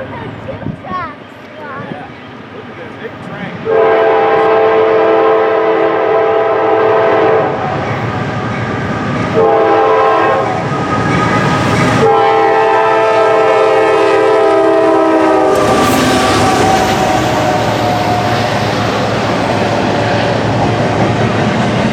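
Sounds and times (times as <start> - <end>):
train rumble and wheel clatter: 0.0 - 21.9
locomotive air horn blasts: 3.7 - 7.8, 9.4 - 18.6.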